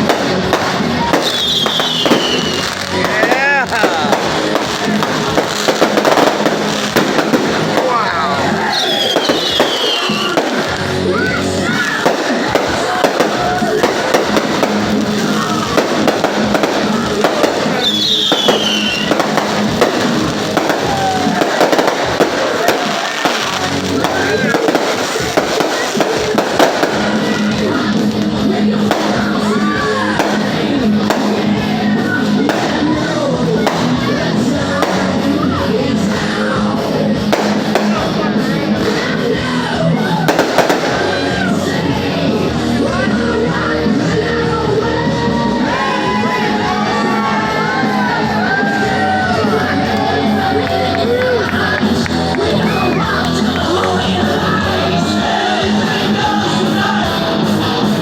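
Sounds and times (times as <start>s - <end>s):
fireworks bangs and crackles: 0.0s - 58.0s
loud music: 0.0s - 58.0s
voices: 0.0s - 58.0s
firework whistle sliding down: 17.8s - 19.1s.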